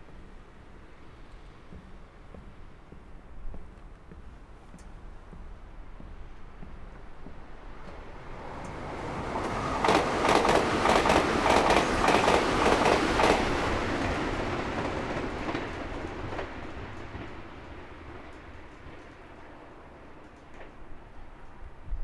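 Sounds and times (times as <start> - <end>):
train wheels clacking over rails: 6.0 - 21.6.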